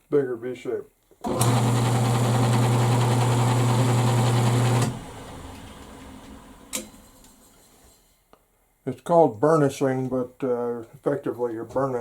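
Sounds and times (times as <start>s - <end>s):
electric motor humming: 1.3s - 6.6s.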